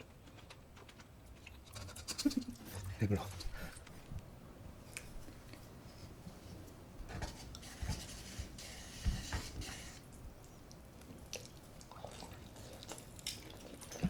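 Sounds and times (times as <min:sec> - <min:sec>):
rustling and scraping: 0:05.2 - 0:10.1.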